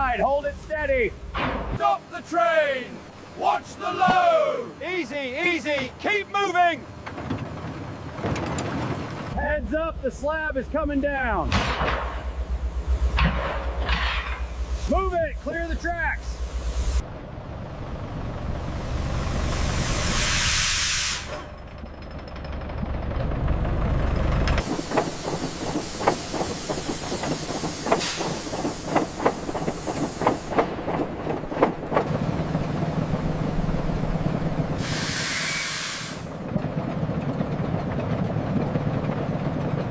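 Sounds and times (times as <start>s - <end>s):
low rumble: 9.1s - 24.6s, 30.7s - 34.9s
steady low hum: 9.2s - 20.2s
metallic clanks: 11.5s - 12.4s, 13.2s - 14.6s
steam locomotive hissing steam: 12.4s - 17.0s, 18.6s - 21.5s, 24.6s - 31.2s, 34.5s - 36.4s.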